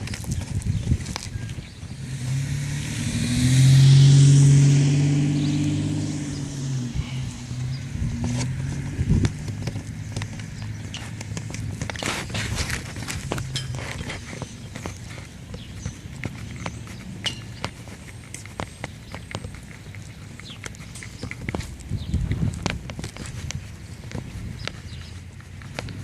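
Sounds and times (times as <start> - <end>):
car driving past: 2.0 - 10.8.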